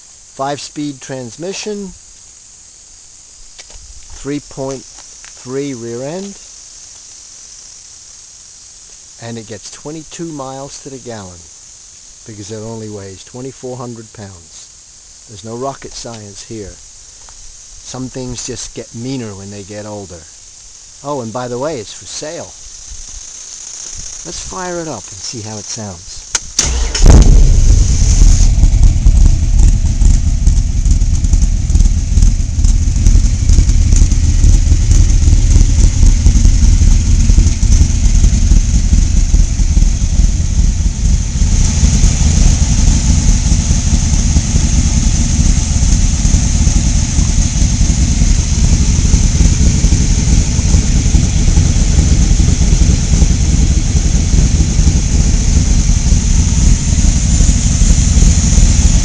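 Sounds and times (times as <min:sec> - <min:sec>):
loud car engine running: 0:26.6 - 0:59.0.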